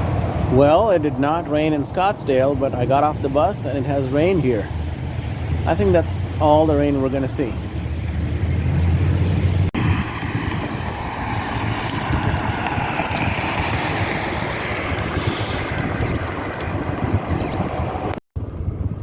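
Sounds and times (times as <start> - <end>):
traffic-like noise: 0.0 - 18.6
wind on microphone: 6.4 - 19.0.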